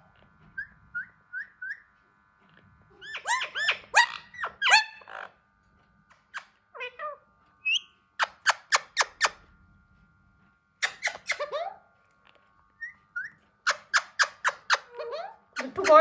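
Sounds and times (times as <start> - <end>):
parakeet squawking and chirping: 0.6 - 1.9, 3.0 - 5.3, 6.3 - 9.4, 10.8 - 11.8, 12.8 - 16.0.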